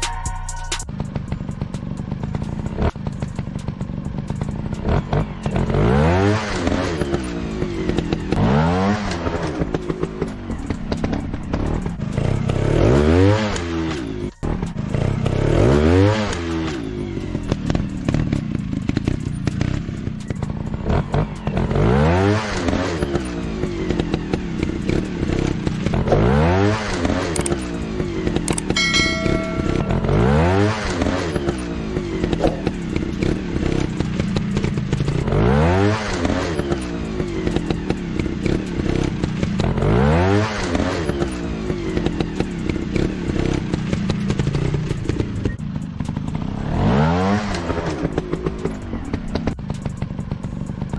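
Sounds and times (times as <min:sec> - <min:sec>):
beep-like tone: 0:00.0 - 0:00.9, 0:28.8 - 0:31.1
dirt bike engine revving: 0:00.9 - 0:20.2, 0:20.8 - 0:50.9.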